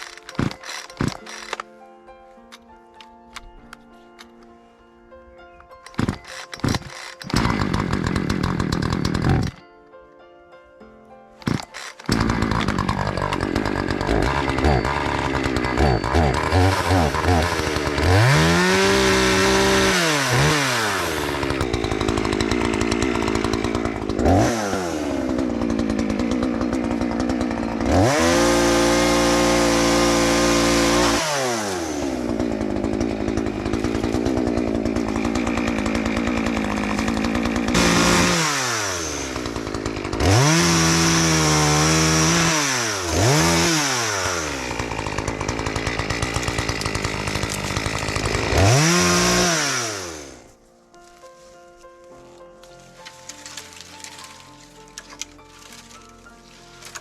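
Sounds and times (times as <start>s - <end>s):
chainsaw revving: 0.0s - 1.6s, 5.8s - 9.6s, 11.4s - 50.5s.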